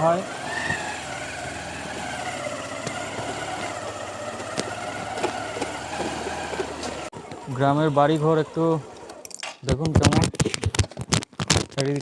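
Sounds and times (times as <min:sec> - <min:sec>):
vehicle engine running at low revs: 0:00.0 - 0:09.2.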